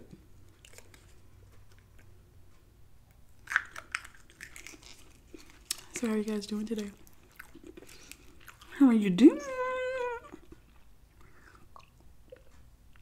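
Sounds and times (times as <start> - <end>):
person chewing food: 0.4 - 2.2, 3.4 - 8.8, 9.9 - 13.0.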